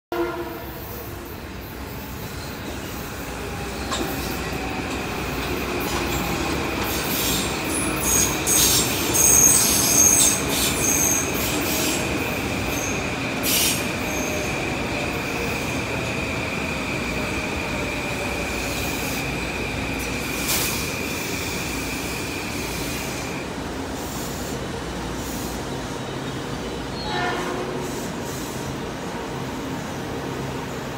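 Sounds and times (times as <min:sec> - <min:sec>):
electric train hum slowing: 0:00.2 - 0:30.9
wheel squeals: 0:05.9 - 0:12.0.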